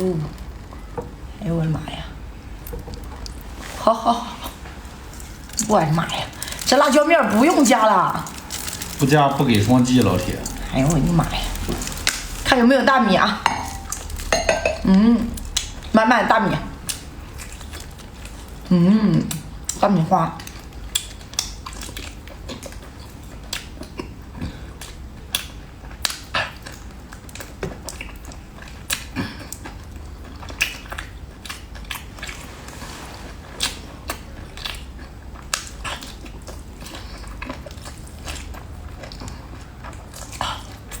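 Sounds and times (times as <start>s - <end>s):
person chewing wetly: 2.6s - 3.7s, 4.4s - 12.6s, 13.6s - 15.9s, 20.4s - 32.5s, 33.4s - 41.0s.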